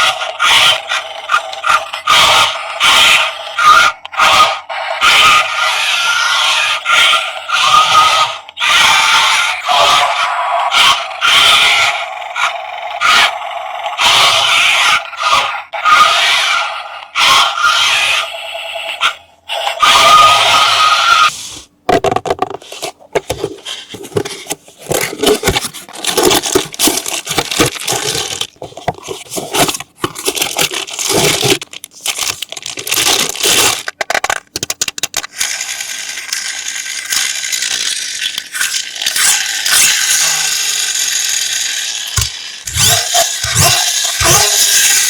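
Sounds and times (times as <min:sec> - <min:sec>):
steady rasping noise: 0:21.2 - 0:34.9
packaging rustling and crinkling: 0:22.4 - 0:35.2.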